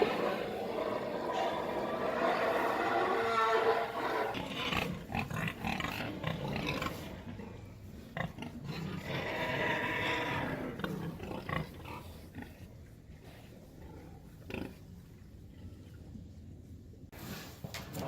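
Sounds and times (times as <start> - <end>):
pigs squealing: 0.0 - 7.2, 8.2 - 12.2.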